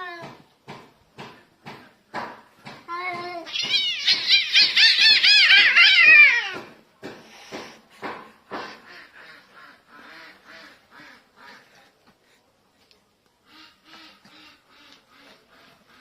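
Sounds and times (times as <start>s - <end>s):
cat yowling: 3.4s - 6.7s
cats screeching: 3.4s - 6.8s.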